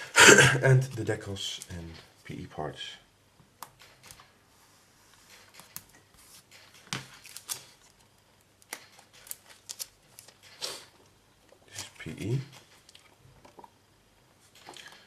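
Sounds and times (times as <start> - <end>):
paper sheets rustling: 5.1 - 8.1
plastic sleeves crinkling: 5.5 - 10.9.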